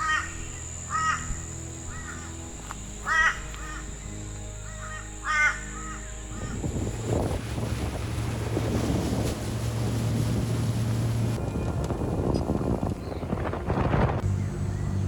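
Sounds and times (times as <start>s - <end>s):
crow cawing: 0.0s - 2.4s, 3.0s - 3.9s, 4.6s - 6.6s
quiet background music: 0.0s - 10.7s.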